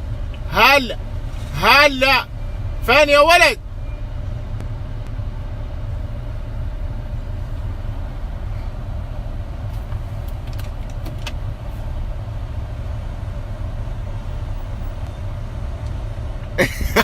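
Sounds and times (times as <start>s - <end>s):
car interior rumble: 0.0s - 17.0s.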